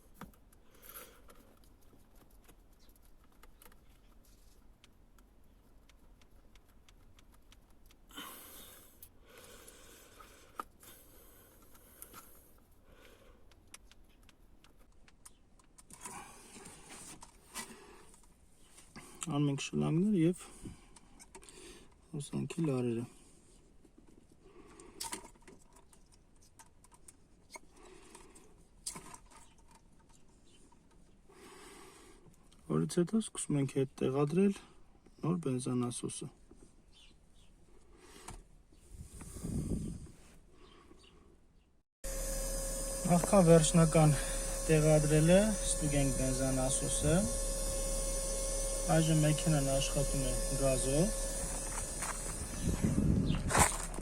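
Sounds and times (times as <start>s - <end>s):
faint clicks and taps of parts: 11.5s - 16.1s
rustling of handled parts: 51.3s - 54.0s.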